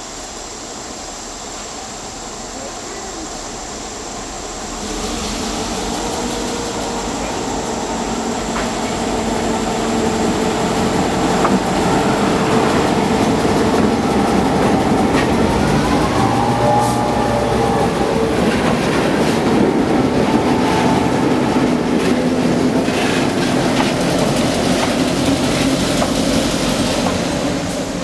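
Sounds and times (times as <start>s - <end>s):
locomotive engine hum: 4.1s - 28.0s
wheels clicking over rail joints: 6.0s - 16.0s, 21.6s - 28.0s.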